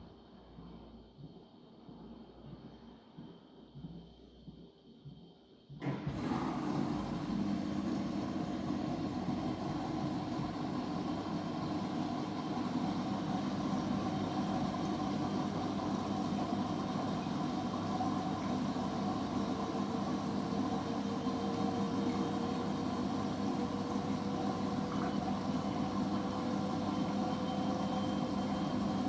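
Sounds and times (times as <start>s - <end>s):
washing machine running: 5.8s - 29.0s.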